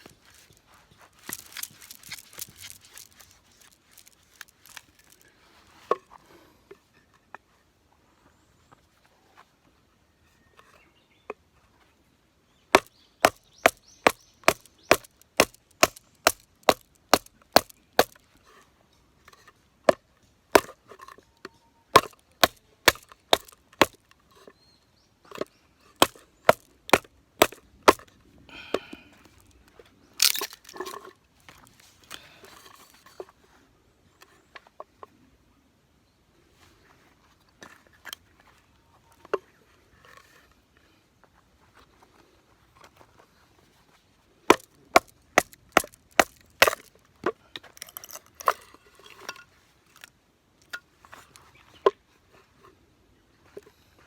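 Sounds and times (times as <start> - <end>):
wood splintering crack: 12.8 - 18.2, 22.0 - 24.0, 30.2 - 30.8, 44.5 - 46.9.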